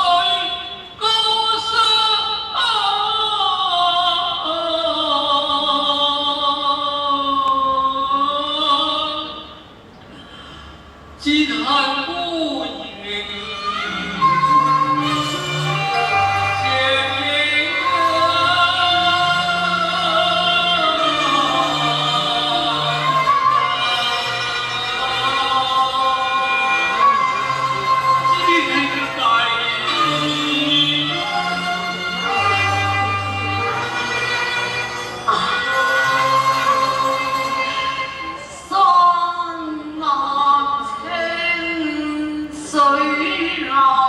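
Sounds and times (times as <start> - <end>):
opera singing on long notes: 11.6 - 44.0.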